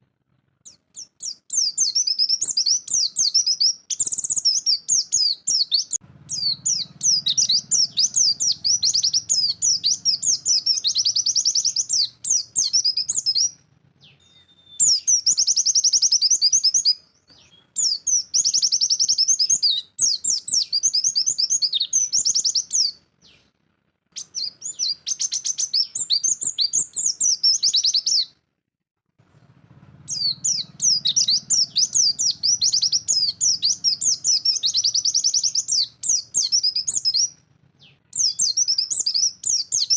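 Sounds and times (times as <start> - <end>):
bird singing rapid chattering notes: 0.6 - 23.4, 24.2 - 28.3, 30.1 - 39.9.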